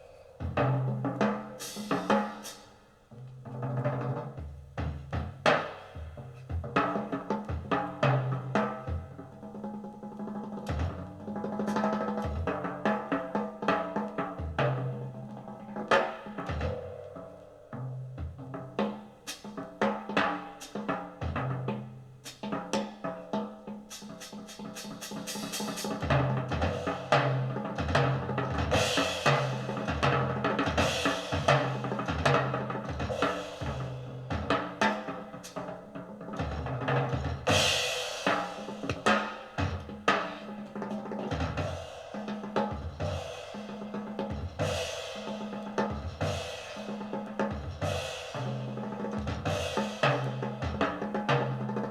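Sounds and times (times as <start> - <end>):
jazz drum kit: 0.0 - 51.9
crashing cymbals: 1.5 - 3.1, 23.9 - 26.1, 28.7 - 30.1, 37.5 - 40.8, 41.6 - 48.8, 49.4 - 50.6.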